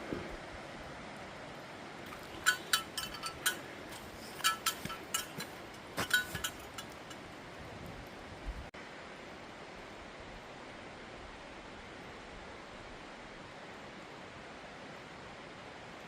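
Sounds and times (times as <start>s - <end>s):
light rain hiss: 0.0s - 16.0s
bear bells jingling: 2.1s - 7.6s.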